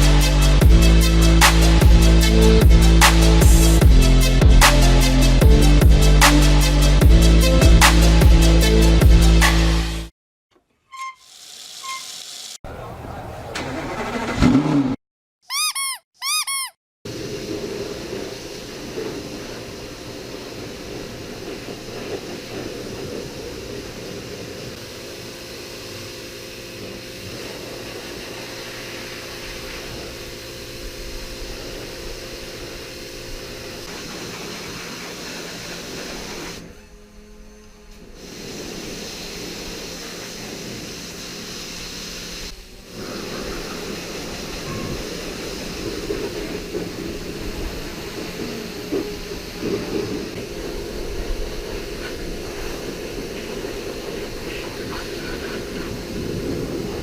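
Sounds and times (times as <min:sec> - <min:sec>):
pressure washer spraying: 0:11.2 - 0:13.0, 0:31.5 - 0:36.7, 0:38.1 - 0:56.9
machine hum: 0:35.5 - 0:57.0.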